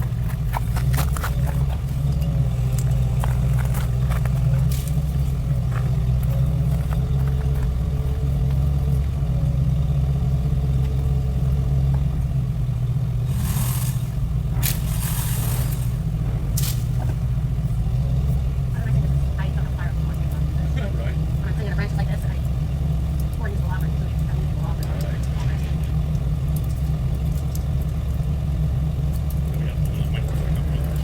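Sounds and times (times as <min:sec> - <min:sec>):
vehicle engine rumbling: 0:00.0 - 0:31.0.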